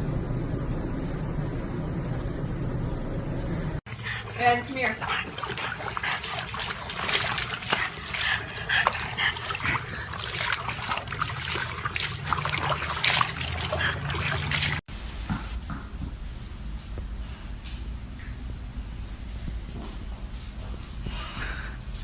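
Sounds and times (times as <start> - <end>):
water splashing and trickling: 3.9 - 14.9.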